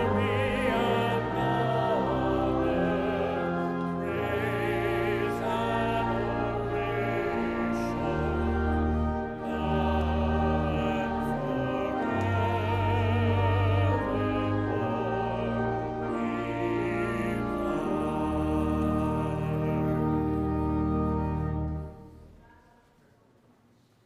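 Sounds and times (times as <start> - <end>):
sustained low accompaniment: 0.0 - 22.6.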